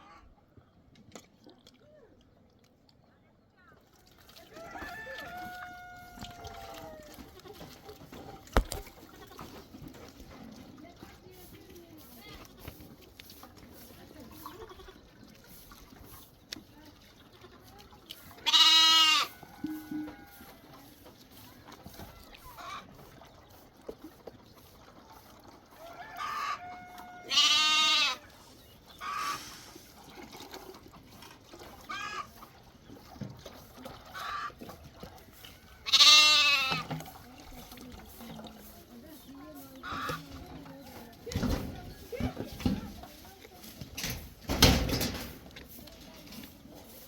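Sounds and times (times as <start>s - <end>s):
goat bleating loudly: 18.4s - 20.4s, 26.2s - 28.3s, 31.9s - 32.3s, 35.8s - 36.9s
short animal calls: 29.0s - 29.6s.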